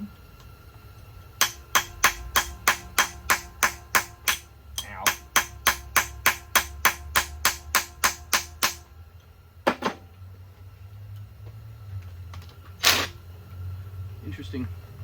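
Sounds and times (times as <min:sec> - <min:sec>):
low steady hum: 0:00.0 - 0:12.6
hand tool metallic clicks: 0:01.4 - 0:08.8
knocks: 0:09.7 - 0:10.1.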